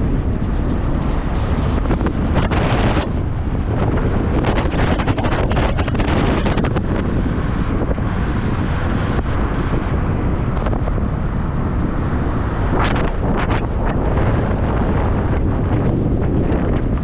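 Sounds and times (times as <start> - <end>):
moving car rumble: 0.0 - 17.0
wind buffeting microphone: 0.0 - 17.0.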